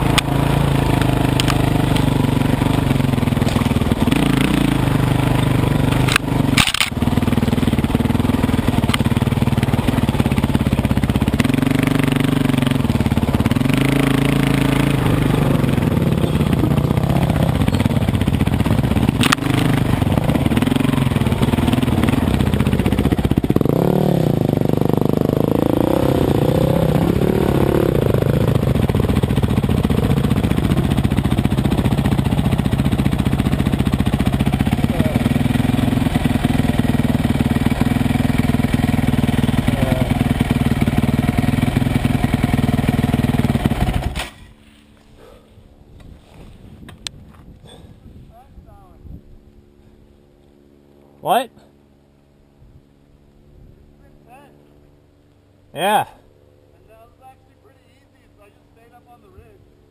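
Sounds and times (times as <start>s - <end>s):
dirt bike engine revving: 0.0s - 44.5s.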